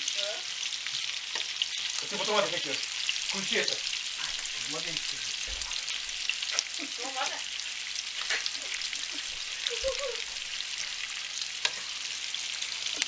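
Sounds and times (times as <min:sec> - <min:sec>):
onion and meat sizzling in a pan: 0:00.0 - 0:13.0
crackles and pops: 0:03.1 - 0:06.9, 0:08.1 - 0:11.8, 0:12.6 - 0:13.0.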